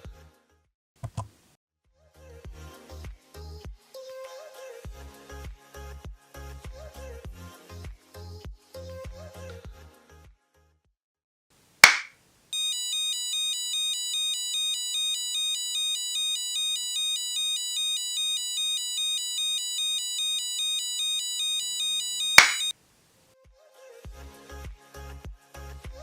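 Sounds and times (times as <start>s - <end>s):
sharp click: 11.8s - 12.1s, 22.4s - 22.7s
electronic two-tone siren: 12.6s - 22.7s.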